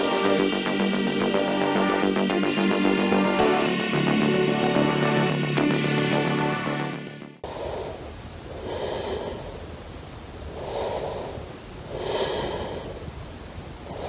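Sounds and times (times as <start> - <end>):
person breathing: 7.4 - 14.0.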